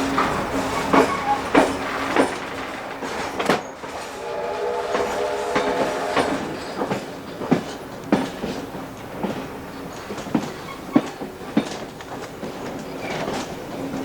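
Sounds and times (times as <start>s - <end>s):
steam whistle: 0.0s - 7.6s
train wheels knocking over rail joints: 0.0s - 14.0s.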